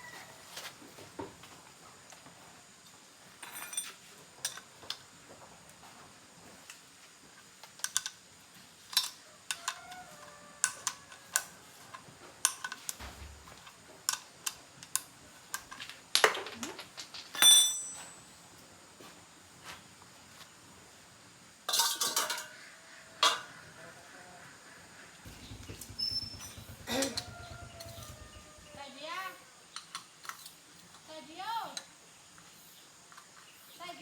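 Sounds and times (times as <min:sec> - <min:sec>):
metal tools clinking: 0:03.4 - 0:04.6, 0:17.3 - 0:18.3, 0:21.7 - 0:22.5.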